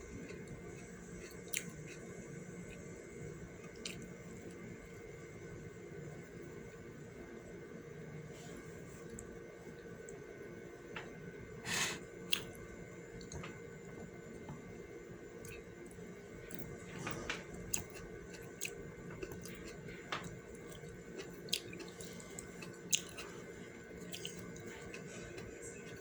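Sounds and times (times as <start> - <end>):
faint steady hum: 0.0 - 26.0
person chewing and lip-smacking: 1.2 - 2.0, 17.7 - 23.4, 24.0 - 26.0.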